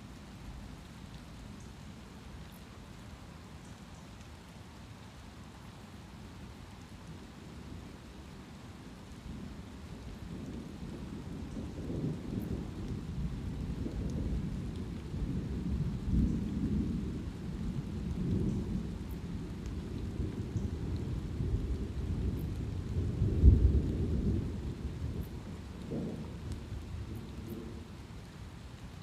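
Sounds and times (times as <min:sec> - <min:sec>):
light rain: 0:00.0 - 0:29.0
thunder rumbling: 0:10.3 - 0:28.0.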